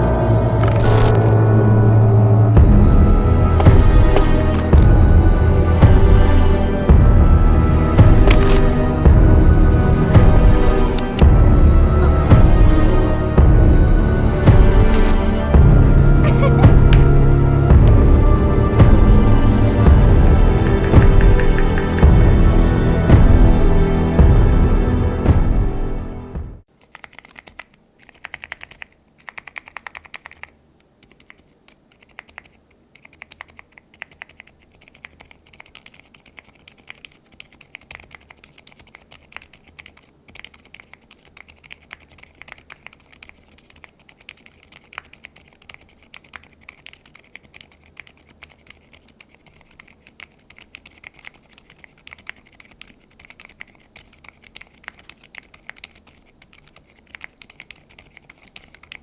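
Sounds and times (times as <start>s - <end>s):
muted mechanical keyboard typing: 14.6s - 15.1s, 26.8s - 59.0s.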